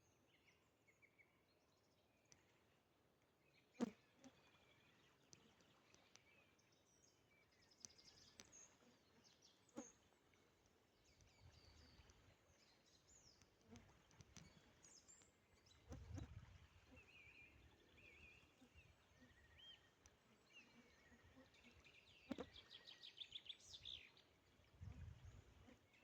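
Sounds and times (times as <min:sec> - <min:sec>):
small birds chirping: 0:11.0 - 0:24.2.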